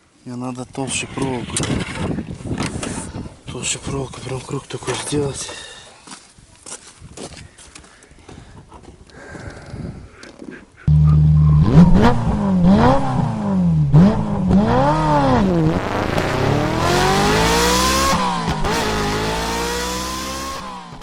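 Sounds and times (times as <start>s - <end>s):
car engine revving and accelerating: 10.9s - 21.0s.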